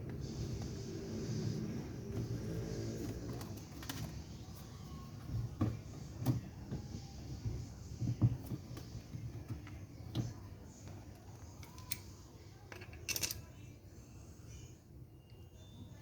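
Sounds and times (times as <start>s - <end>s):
light clicks and knocks of tools: 9.5s - 13.6s
small parts clattering: 12.7s - 13.6s.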